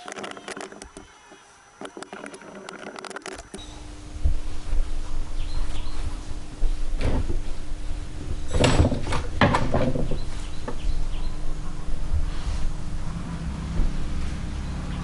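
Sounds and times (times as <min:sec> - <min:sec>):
steady low hum: 0:00.4 - 0:15.0
motorcycle parts and tools clattering: 0:08.4 - 0:11.0.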